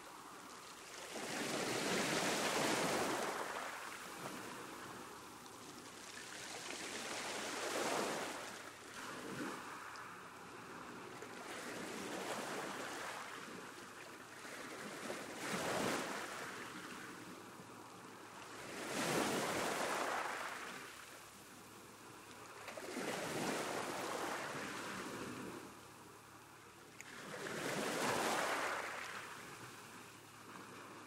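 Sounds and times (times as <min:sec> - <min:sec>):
sea waves washing ashore: 0:00.0 - 0:31.0.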